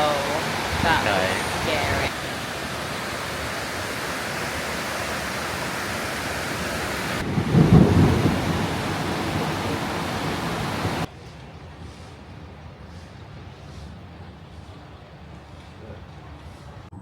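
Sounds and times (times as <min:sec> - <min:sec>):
heavy rain downpour: 0:00.0 - 0:11.1
low rumble of thunder: 0:07.2 - 0:11.1.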